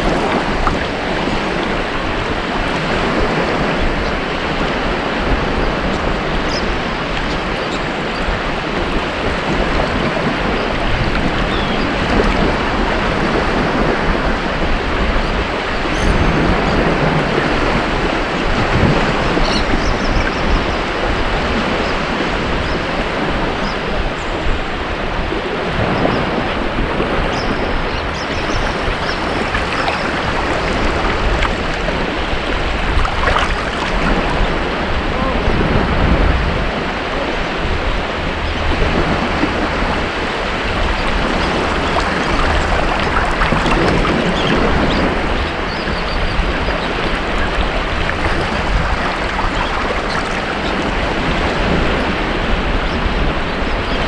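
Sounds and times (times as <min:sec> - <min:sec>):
ocean surf breaking: 0:27.8 - 0:35.0, 0:40.7 - 0:52.5.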